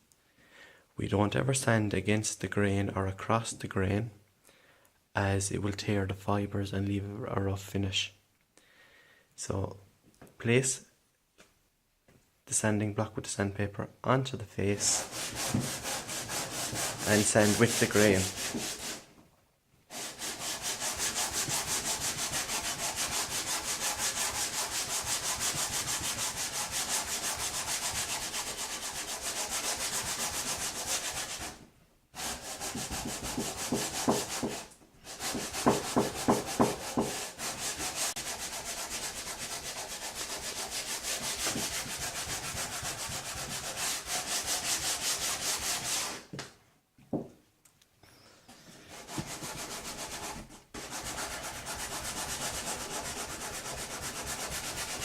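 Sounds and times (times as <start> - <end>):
sandpaper rubbing on wood: 14.8 - 19.1, 19.9 - 31.6, 32.2 - 46.3, 48.9 - 55.0.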